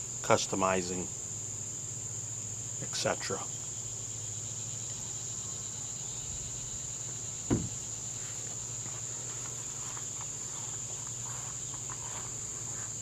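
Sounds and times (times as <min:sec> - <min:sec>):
crickets chirring: 0:00.0 - 0:13.0
low thump: 0:07.5 - 0:07.8.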